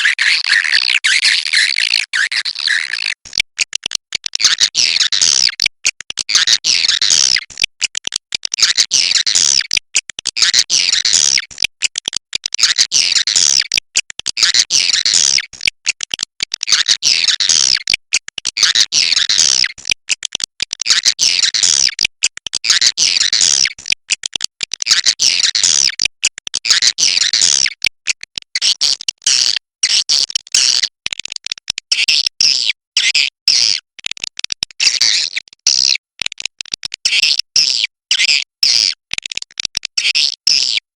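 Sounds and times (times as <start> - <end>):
swiftlet chattering twitters: 0.0 - 3.3.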